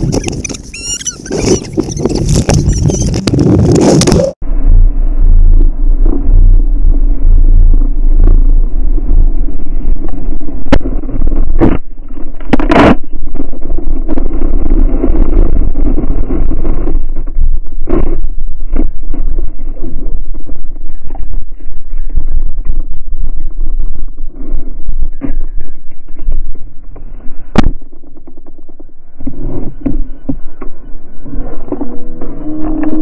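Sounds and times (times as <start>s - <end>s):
loud steady rumbling: 0.0s - 33.0s.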